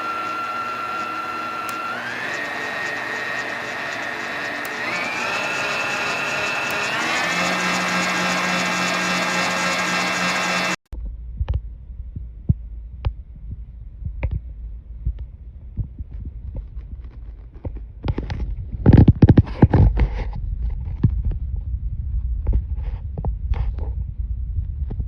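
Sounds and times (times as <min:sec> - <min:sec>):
stand mixer motor whining: 0:00.0 - 0:10.8
low rumble: 0:10.9 - 0:17.6, 0:20.3 - 0:25.0.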